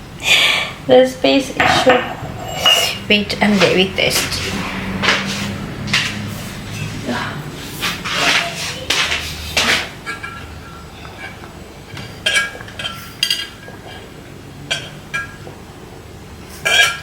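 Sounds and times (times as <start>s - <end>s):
glass items clinking: 10.1s - 14.0s, 16.6s - 17.0s.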